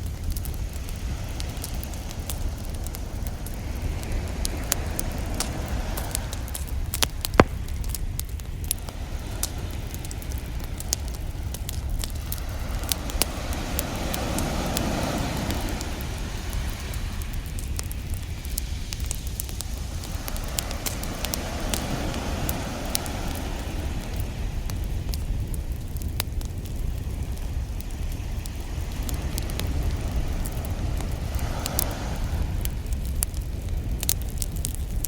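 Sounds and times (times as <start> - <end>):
ocean surf rumble: 0.0 - 25.8, 26.6 - 34.5
campfire crackling and popping: 0.0 - 35.0
wave washing in: 28.6 - 32.9.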